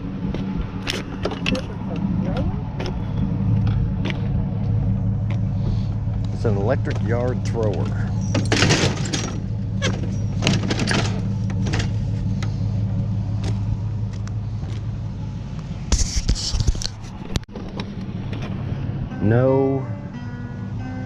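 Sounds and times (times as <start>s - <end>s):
vehicle engine idling: 0.0s - 16.0s
scrap metal clanking and rattling: 5.5s - 13.7s.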